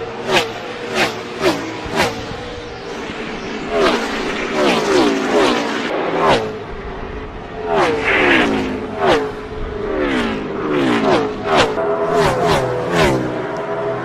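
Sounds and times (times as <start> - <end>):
race cars passing at full throttle: 0.0 - 14.0.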